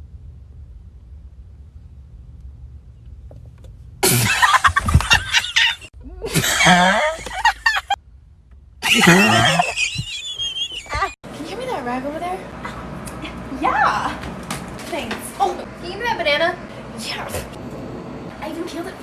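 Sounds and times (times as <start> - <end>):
faint low hum: 0.0 - 14.1.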